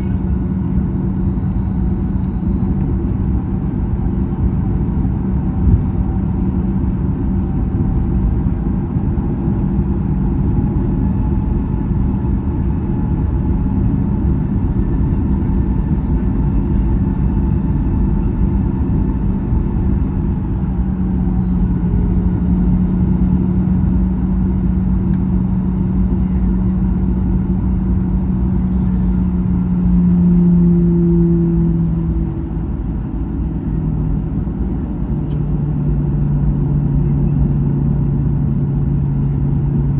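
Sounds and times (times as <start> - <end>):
airplane cabin rumble: 0.0 - 39.9
jet engines humming: 0.0 - 39.9.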